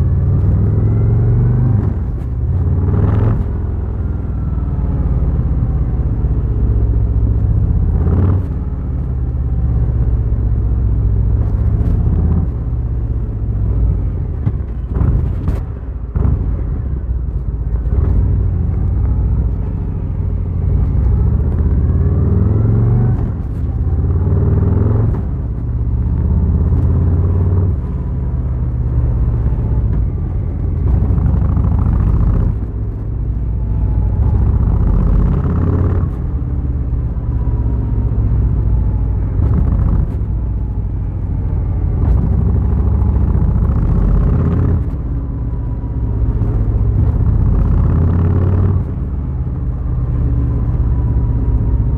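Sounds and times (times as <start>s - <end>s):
motorcycle engine rumbling: 0.0s - 51.9s.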